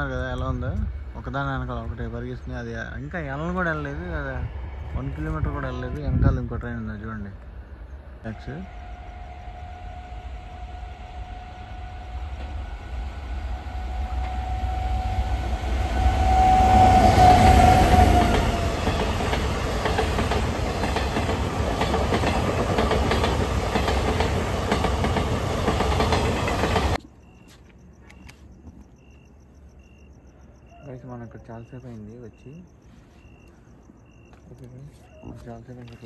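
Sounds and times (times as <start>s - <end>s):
train passing: 0.0s - 34.7s
wheels clattering over rails: 17.2s - 27.0s.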